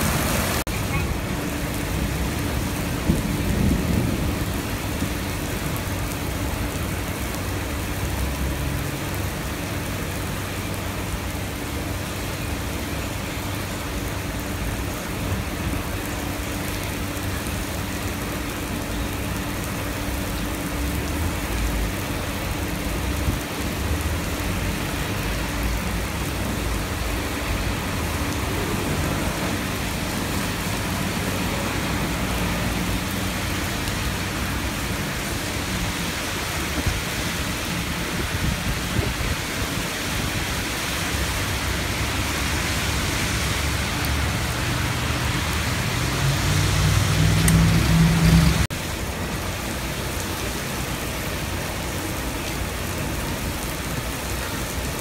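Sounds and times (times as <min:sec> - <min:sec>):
heavy rain on road: 0:00.0 - 0:55.0
vehicles driving through water: 0:00.0 - 0:55.0.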